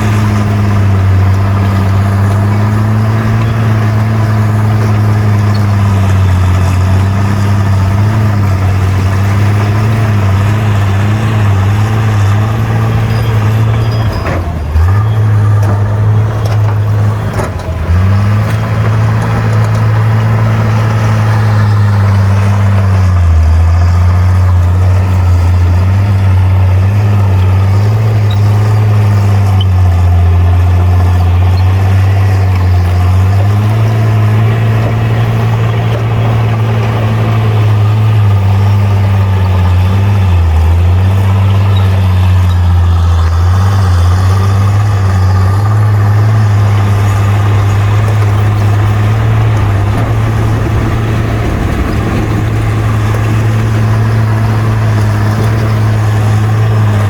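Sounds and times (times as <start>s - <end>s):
bulldozer diesel engine droning: 0.0s - 57.0s.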